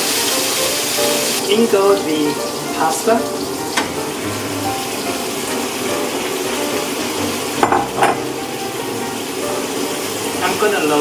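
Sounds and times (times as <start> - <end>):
pasta sauce sizzling in a frying pan: 0.0 - 11.0
sharp knocks: 7.6 - 8.3.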